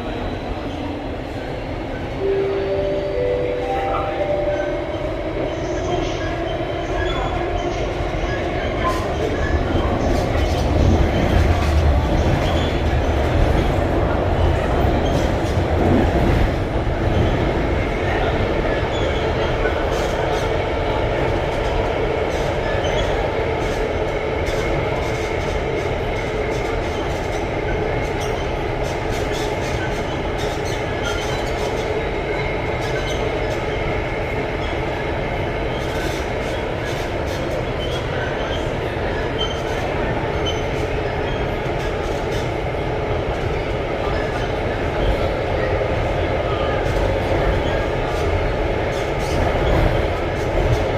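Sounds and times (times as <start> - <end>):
faint high tone: 2.2 - 5.8
train wheels rumbling on rail: 4.7 - 50.9.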